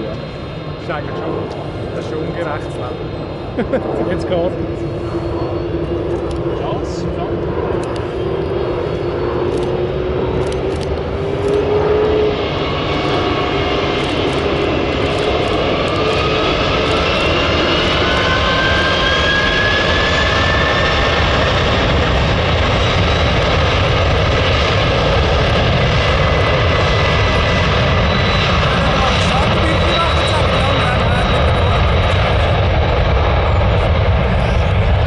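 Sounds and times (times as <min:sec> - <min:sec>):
engine whine rising in pitch: 0:00.0 - 0:24.7
jet engines at takeoff power: 0:00.0 - 0:35.0.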